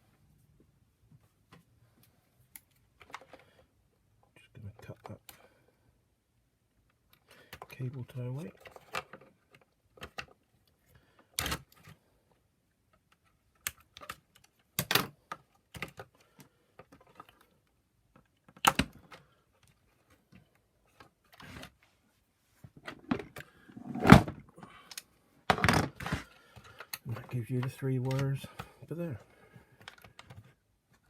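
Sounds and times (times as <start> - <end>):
clicks and knocks on plastic parts: 24.9 - 28.8.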